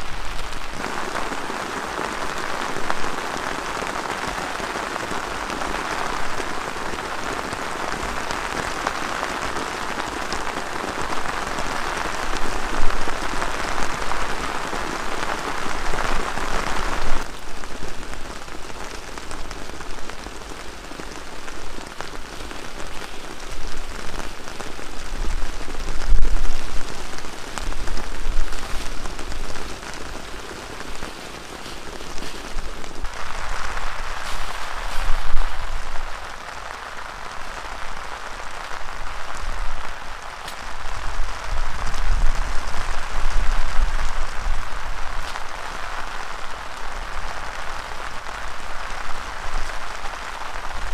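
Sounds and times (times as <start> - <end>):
heavy rain falling: 0.0 - 50.9
wind rumbling on microphone: 21.0 - 50.9.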